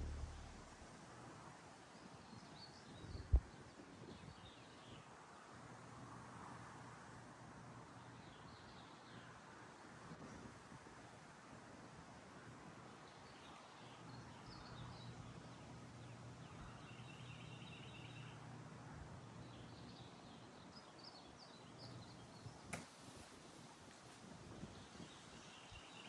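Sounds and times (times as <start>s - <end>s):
faint low hum: 0.0s - 1.4s
faint birds chirping: 12.8s - 22.8s.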